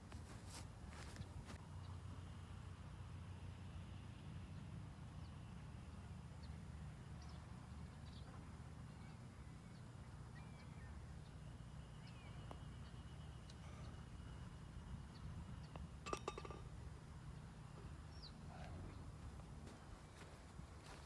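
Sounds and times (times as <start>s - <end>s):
faint bird chirps: 8.9s - 15.8s
low wind rumble on microphone: 14.3s - 16.0s.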